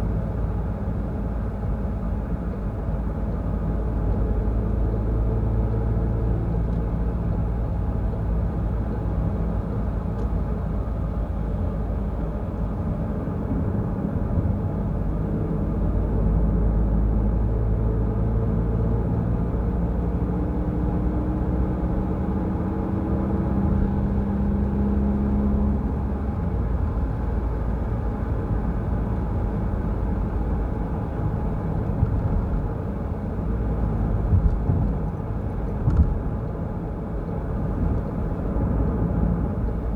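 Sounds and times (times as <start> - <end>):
car driving on wet road: 20.7 - 39.9.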